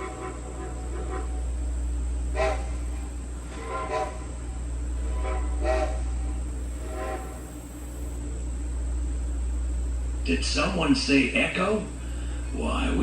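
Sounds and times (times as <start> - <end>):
low rumble of moving train: 0.0 - 13.0
steam locomotive whistle blasts: 2.3 - 8.0.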